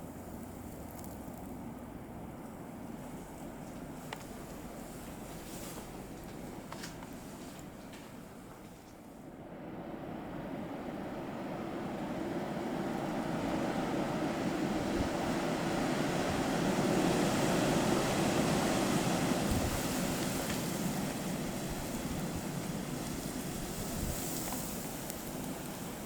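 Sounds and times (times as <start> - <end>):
blizzard wind rushing: 9.3 - 26.0.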